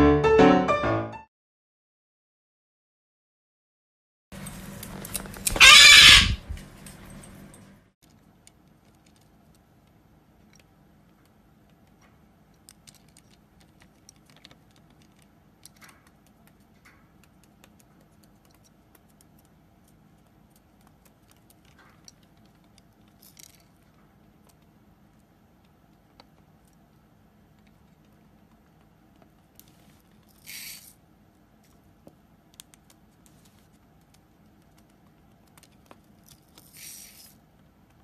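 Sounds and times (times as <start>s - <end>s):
faint small clicks and taps: 8.0s - 30.3s, 31.6s - 38.0s.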